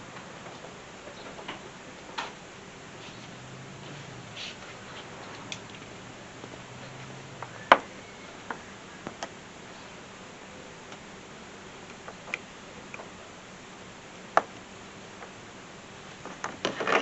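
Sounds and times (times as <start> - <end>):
faint low hum: 0.0 - 17.0
clicks and light knocks: 0.1 - 2.4.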